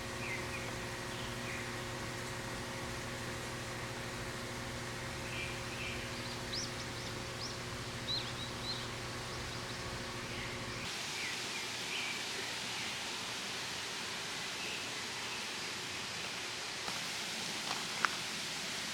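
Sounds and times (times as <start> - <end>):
small birds chirping: 0.0 - 1.9, 5.1 - 13.1
flowing water hiss: 0.0 - 18.9
low steady hum: 0.0 - 18.9.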